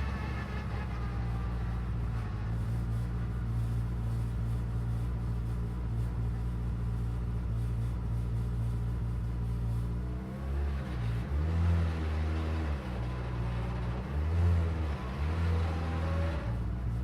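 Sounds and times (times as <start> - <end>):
race car engine idling: 0.0 - 10.1.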